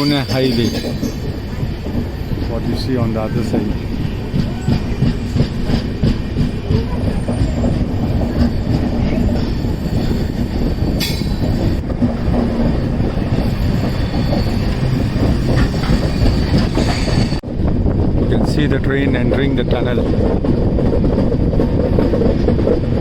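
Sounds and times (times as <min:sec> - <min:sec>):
rail-joint clicks: 0:00.0 - 0:17.4
train wheels rumbling: 0:00.0 - 0:23.0.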